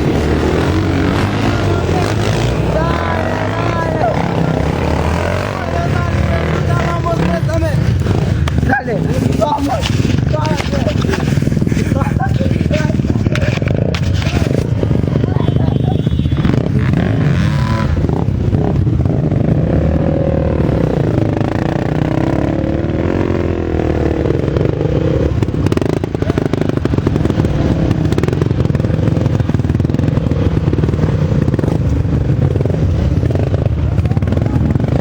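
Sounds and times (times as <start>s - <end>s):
racing motorcycles revving past: 0.0s - 35.0s.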